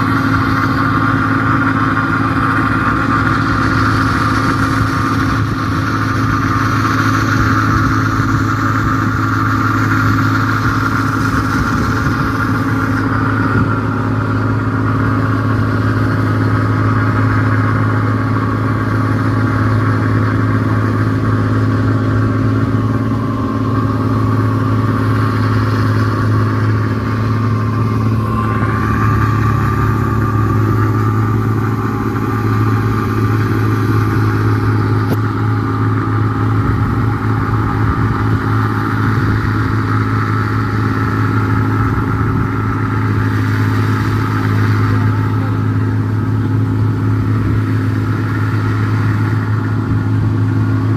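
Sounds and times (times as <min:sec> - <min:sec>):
combine harvester engine drone: 0:00.0 - 0:50.9.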